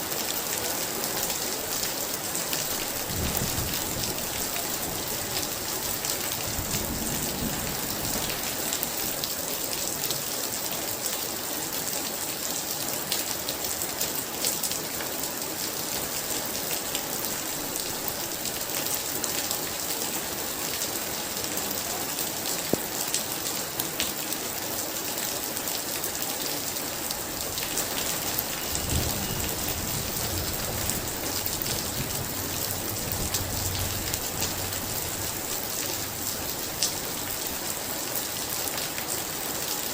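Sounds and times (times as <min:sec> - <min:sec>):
heavy rain pouring: 0:00.0 - 0:39.9
thunder rumble: 0:06.3 - 0:08.6, 0:27.4 - 0:37.4.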